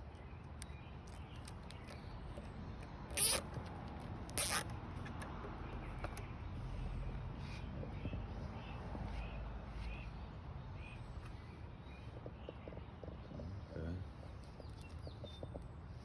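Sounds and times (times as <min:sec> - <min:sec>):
cable tie zipping tight: 0:03.1 - 0:05.2.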